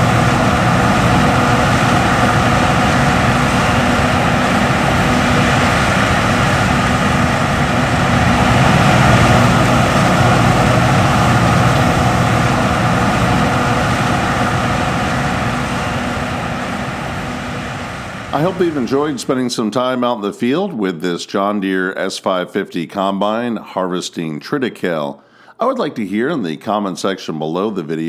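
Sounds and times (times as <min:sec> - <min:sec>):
combine harvester engine droning: 0:00.0 - 0:19.9.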